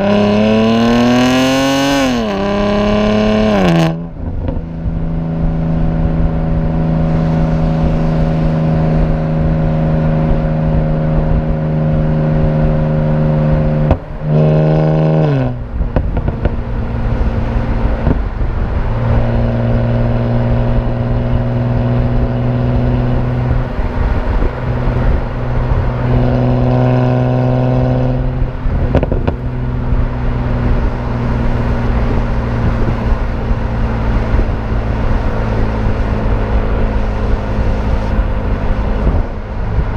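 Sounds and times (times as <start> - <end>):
car engine revving while driving: 0.0 - 39.9.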